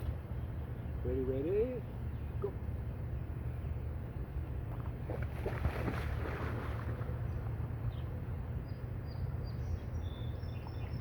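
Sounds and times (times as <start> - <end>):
wind rumble on microphone: 3.6 - 11.0
dog splashing into water: 5.0 - 7.1.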